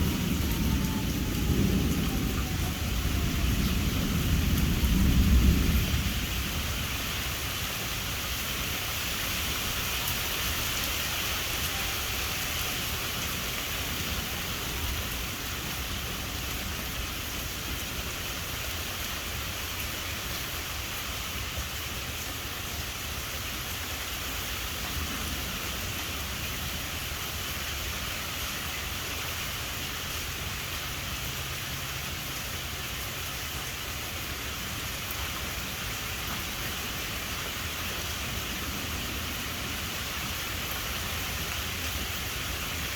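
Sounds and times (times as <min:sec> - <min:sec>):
low thunder rumble: 0:00.0 - 0:08.8
steady rain hiss: 0:00.0 - 0:42.9.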